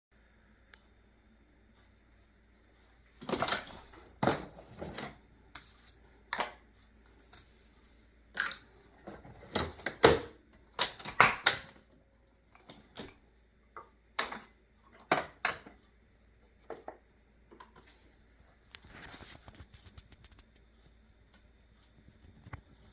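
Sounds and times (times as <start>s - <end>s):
coffee machines clicking and clunking: 8.4s - 11.9s, 12.6s - 15.8s.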